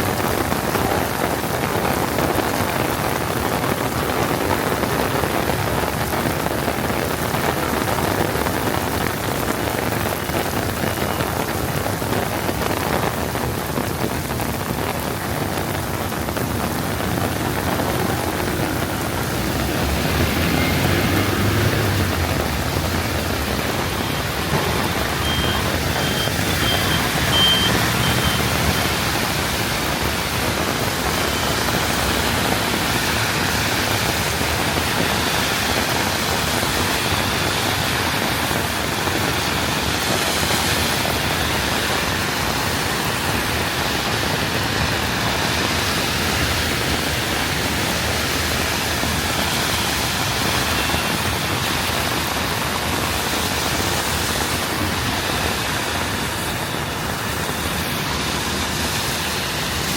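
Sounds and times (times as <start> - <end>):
heavy rain pouring: 0.0 - 59.9
high beeps: 24.5 - 28.5.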